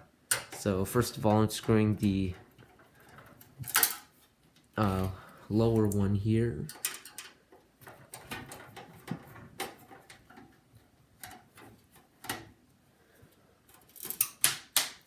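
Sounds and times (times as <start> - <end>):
screwdriver clicking on metal: 0.3 - 2.3.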